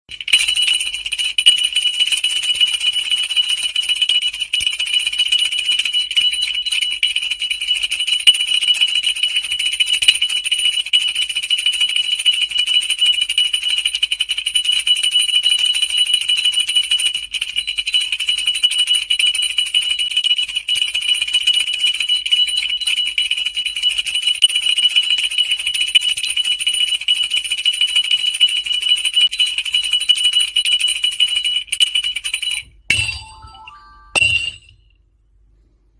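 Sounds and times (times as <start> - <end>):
brass jingle bells shaken: 0.1 - 10.8, 28.8 - 34.8.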